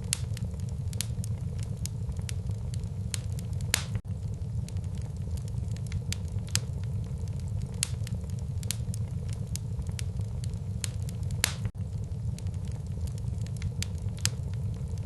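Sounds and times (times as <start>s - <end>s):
low fire rumble: 0.0s - 15.0s
wood fire crackling and popping: 0.0s - 15.0s.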